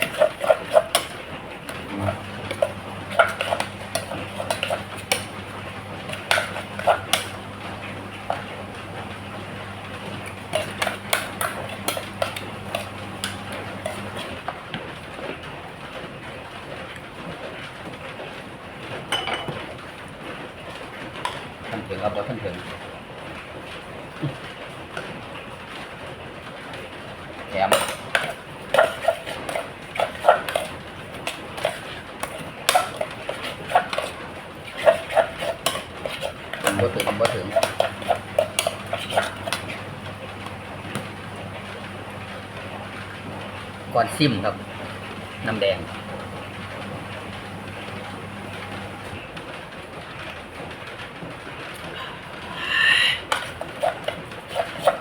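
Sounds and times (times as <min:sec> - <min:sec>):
spoons and dishes clinking: 0:00.0 - 0:01.2, 0:02.1 - 0:08.5, 0:10.2 - 0:14.4, 0:19.1 - 0:19.6, 0:27.7 - 0:40.2, 0:53.3 - 0:55.0.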